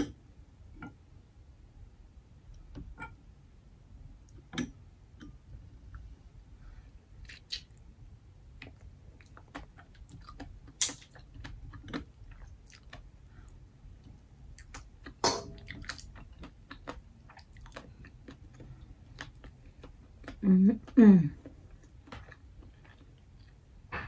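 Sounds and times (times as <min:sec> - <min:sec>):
person chewing mussels: 0:07.1 - 0:23.9.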